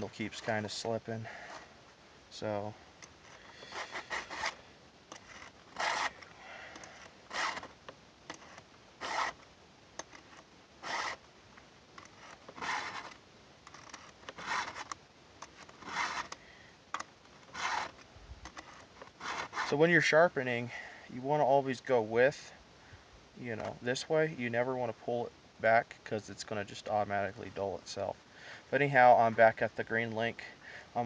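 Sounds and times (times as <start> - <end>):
file rasping on saw chain: 3.4 - 4.6, 5.2 - 6.2, 6.9 - 7.7, 8.4 - 9.4, 10.8 - 11.2, 12.1 - 13.1, 13.8 - 14.8, 15.8 - 16.4, 17.5 - 17.9, 18.6 - 19.8.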